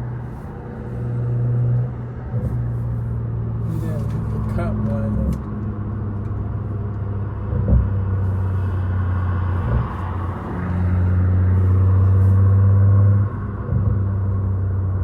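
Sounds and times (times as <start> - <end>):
car exhaust droning: 0.0 - 15.0.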